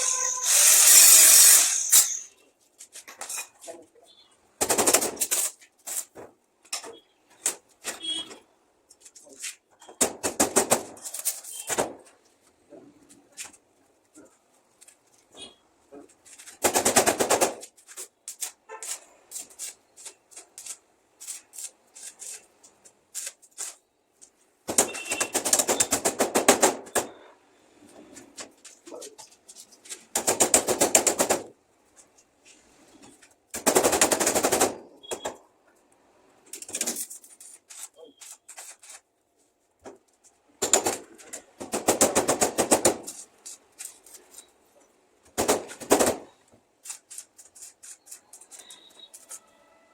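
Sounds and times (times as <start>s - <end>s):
arc welding crackle: 0.0s - 2.3s.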